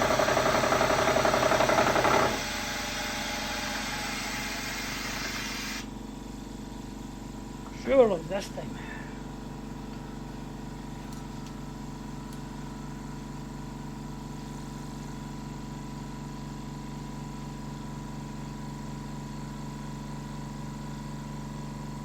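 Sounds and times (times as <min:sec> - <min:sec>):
milling machine motor humming: 0:00.0 - 0:05.9.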